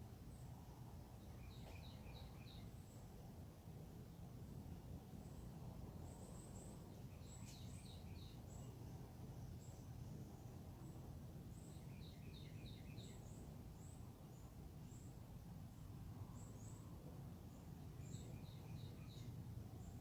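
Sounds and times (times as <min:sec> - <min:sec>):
faint birds chirping: 0:00.0 - 0:20.0.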